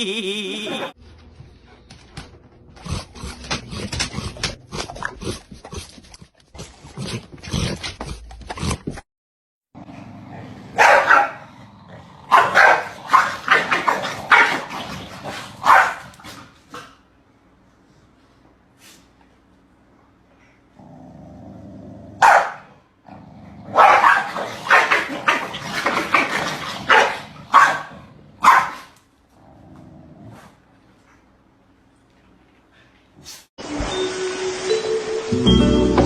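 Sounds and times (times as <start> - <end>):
dogs barking and yelping: 10.8 - 11.4, 23.7 - 28.8.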